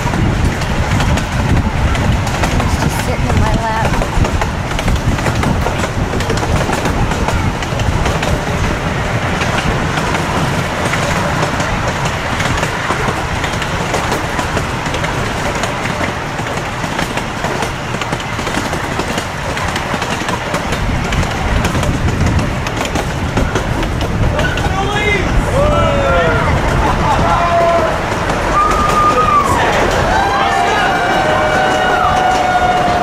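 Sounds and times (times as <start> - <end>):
train rumbling on track: 0.0 - 33.0
wheels clicking over rails: 0.0 - 33.0.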